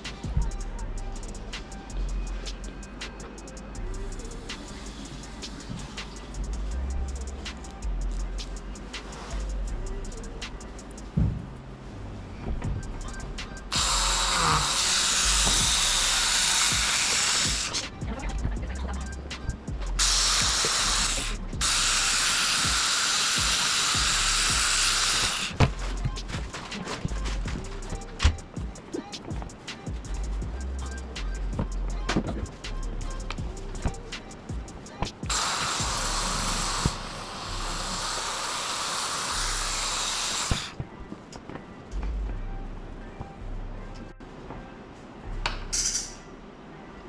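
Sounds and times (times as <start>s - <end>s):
pressurized spray hissing: 1.3s - 6.6s, 13.0s - 18.1s, 19.0s - 27.2s, 33.8s - 40.8s.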